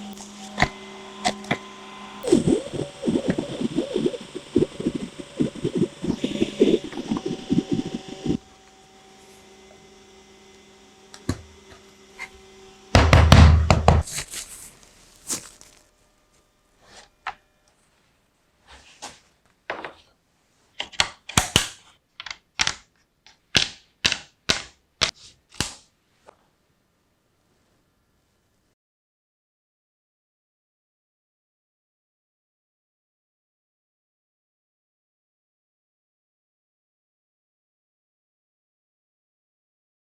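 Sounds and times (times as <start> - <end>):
sharp knocks and clicks: 13.0 - 14.0
loud thump: 13.0 - 14.1.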